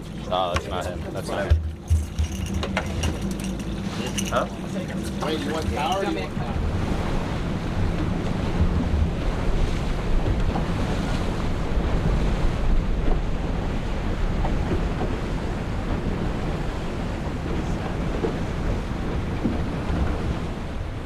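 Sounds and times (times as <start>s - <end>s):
low steady hum: 0.0s - 7.9s
water rushing past boat hull: 0.0s - 21.0s
wind buffeting microphone: 0.0s - 21.0s.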